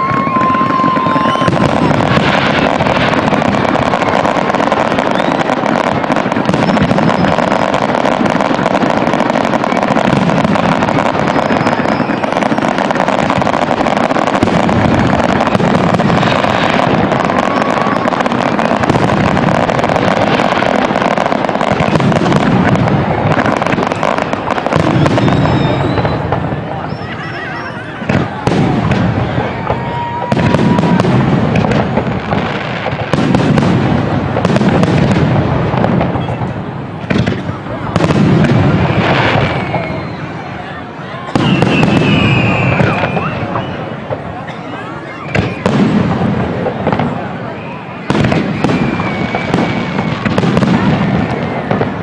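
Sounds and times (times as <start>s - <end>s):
firework whistles: 0.0s - 35.2s, 35.8s - 52.0s
fireworks banging and crackling: 0.0s - 52.0s.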